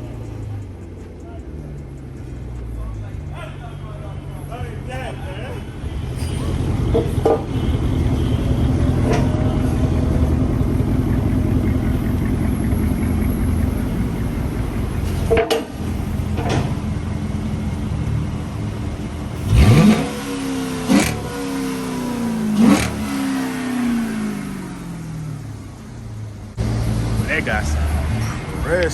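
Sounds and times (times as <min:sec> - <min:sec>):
car engine exhaust rumble: 0:00.0 - 0:28.9
engine revving: 0:00.0 - 0:28.9
sharp exhaust bursts: 0:19.3 - 0:25.3.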